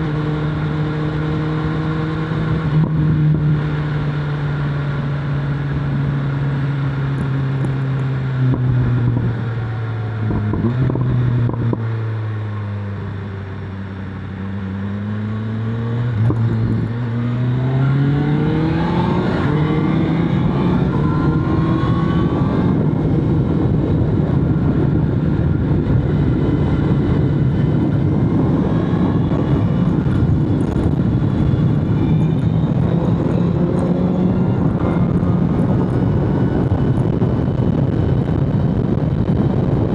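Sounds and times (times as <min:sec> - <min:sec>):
motorcycle engine: 0:00.0 - 0:39.9
wind noise: 0:00.0 - 0:39.9.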